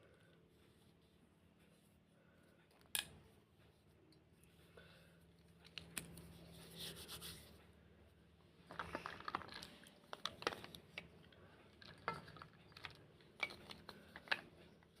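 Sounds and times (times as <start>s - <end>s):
slate crunching and crackling: 8.6s - 15.0s.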